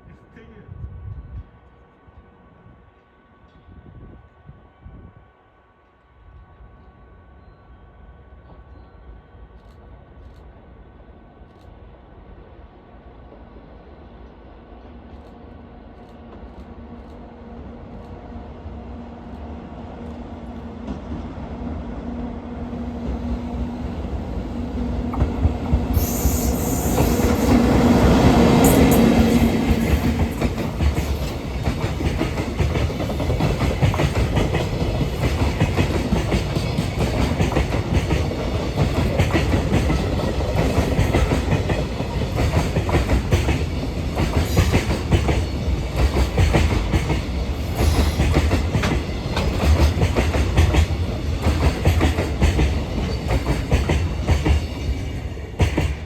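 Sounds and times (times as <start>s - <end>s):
electric locomotive hum: 0.8s - 56.0s
train wheels clickety-clack: 23.0s - 56.0s.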